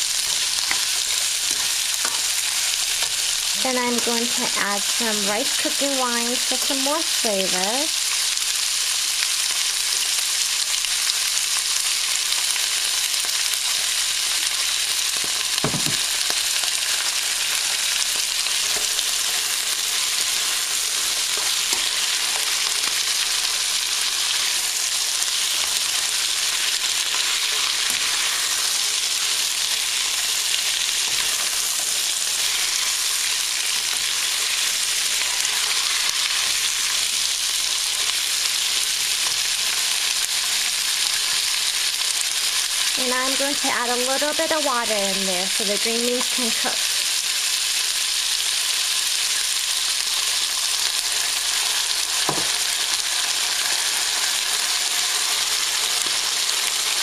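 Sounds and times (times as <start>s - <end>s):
green beans sizzling in oil: 0.0s - 57.0s
single knock: 15.6s - 16.0s.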